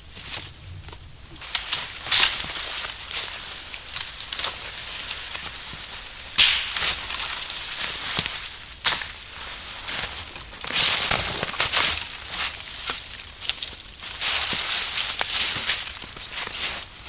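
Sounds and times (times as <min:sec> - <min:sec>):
dry wood crackling: 0:00.0 - 0:16.8
sharp wood snaps: 0:06.4 - 0:07.4.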